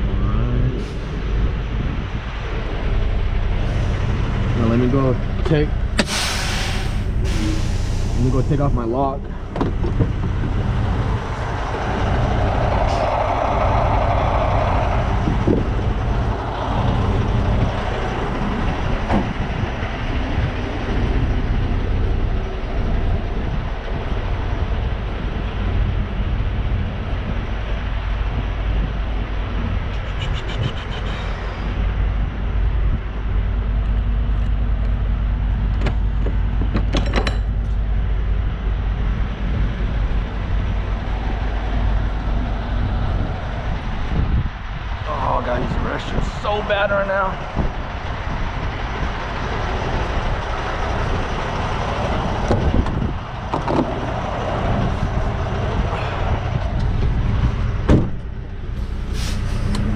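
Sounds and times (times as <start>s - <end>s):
truck diesel engine idling: 2.6s - 32.7s, 37.6s - 59.9s
short knocks and clanks: 9.2s - 10.6s, 35.8s - 37.6s, 56.9s - 58.3s.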